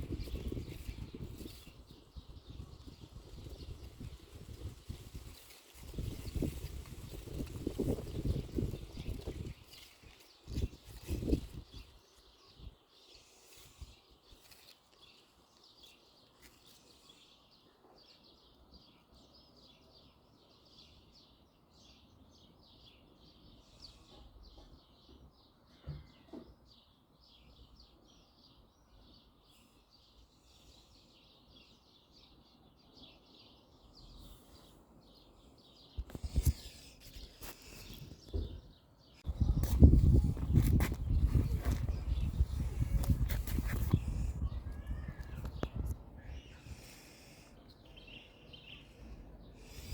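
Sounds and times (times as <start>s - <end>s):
birds chirping: 0.0s - 49.9s.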